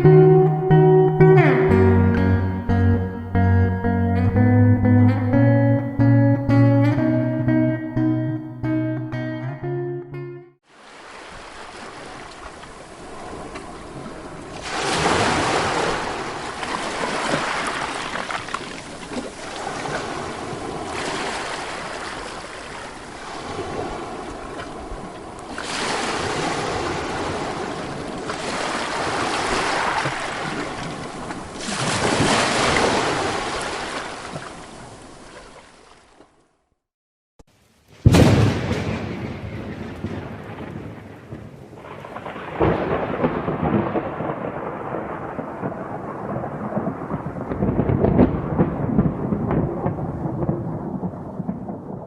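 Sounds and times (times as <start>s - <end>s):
ocean waves breaking on shore: 10.6s - 36.3s.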